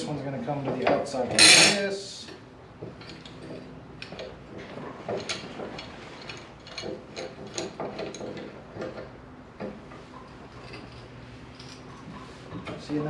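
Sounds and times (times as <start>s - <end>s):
metallic clicks and knocks: 2.8s - 9.8s.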